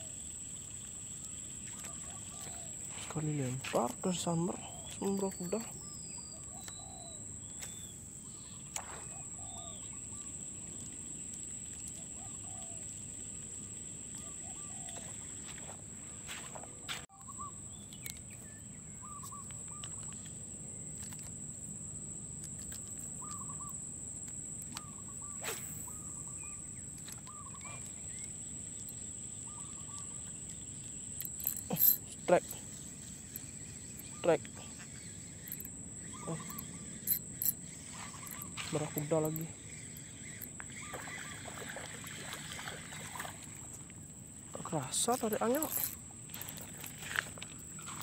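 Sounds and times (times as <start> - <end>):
faint bird calls: 1.3 - 10.4, 14.1 - 20.3, 23.2 - 23.8, 24.7 - 43.4.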